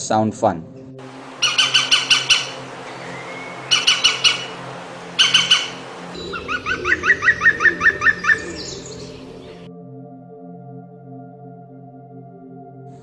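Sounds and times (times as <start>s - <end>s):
woodpecker calling: 1.0s - 9.7s.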